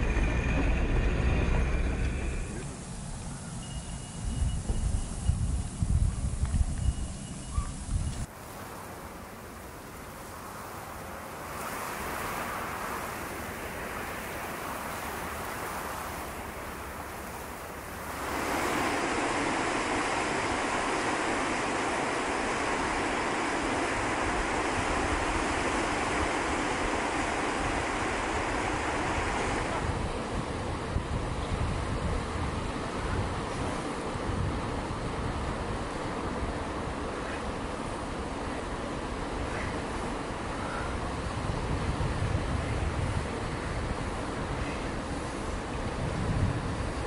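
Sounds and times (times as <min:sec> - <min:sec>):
wind on microphone: 0:04.2 - 0:08.8, 0:09.9 - 0:37.0, 0:39.5 - 0:47.0
river rushing over rapids: 0:08.3 - 0:30.3.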